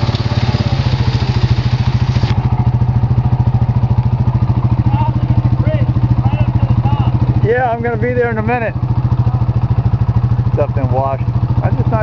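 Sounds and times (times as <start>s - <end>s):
hiss: 0.0s - 2.4s
small vehicle engine idling: 0.0s - 12.0s.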